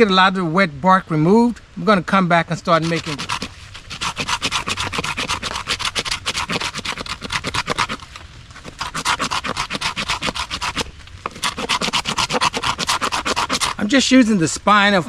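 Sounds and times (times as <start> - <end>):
knife scraping bark off wood: 2.6 - 14.0.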